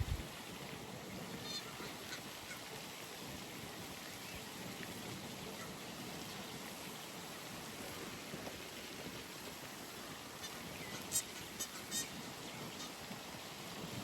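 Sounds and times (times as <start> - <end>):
rain hissing on pond: 0.0 - 14.0
bird harsh calls: 10.4 - 13.0.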